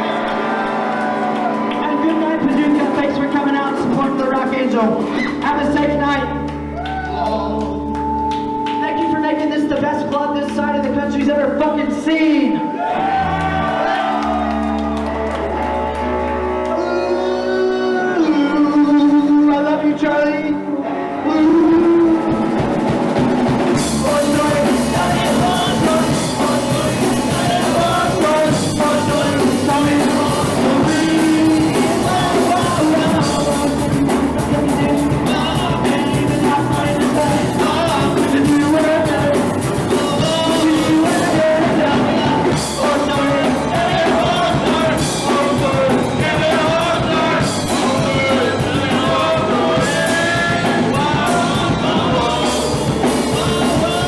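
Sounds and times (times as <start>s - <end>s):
punk rock band playing live: 0.0s - 20.0s, 20.6s - 54.0s
person singing: 0.0s - 23.1s, 23.7s - 54.0s
drum kit: 21.8s - 54.0s.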